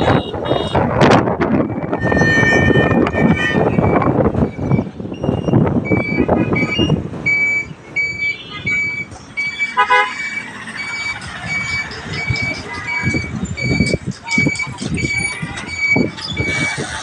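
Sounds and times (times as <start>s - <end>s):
vehicle horn: 0.0s - 0.9s, 1.9s - 3.9s, 9.8s - 10.3s
road and wind noise: 0.0s - 17.0s
short high beeps: 4.6s - 16.7s.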